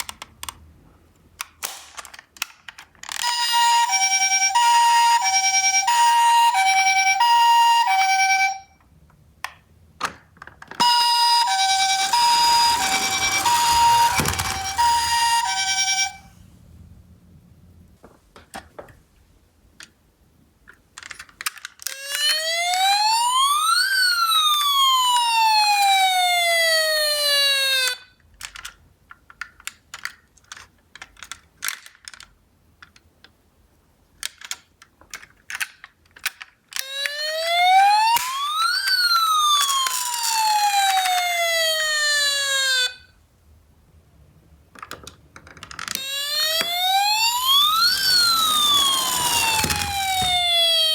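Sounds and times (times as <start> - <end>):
toy electronic siren wailing: 3.2 - 8.7, 10.8 - 16.3, 21.9 - 28.1, 36.8 - 43.1, 45.9 - 50.9.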